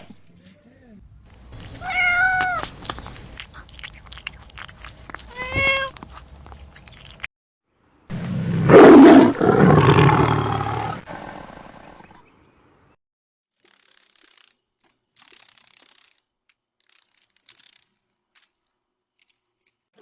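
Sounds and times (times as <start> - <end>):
big cat roaring: 8.1 - 11.7.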